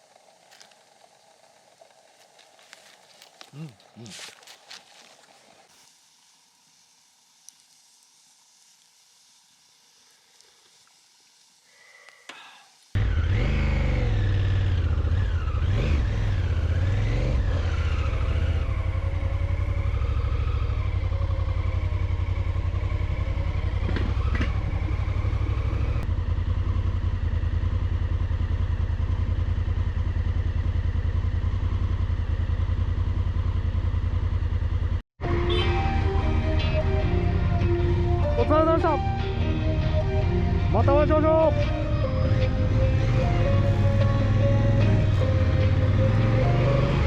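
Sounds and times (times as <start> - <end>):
motorcycle engine running: 13.0 - 47.0.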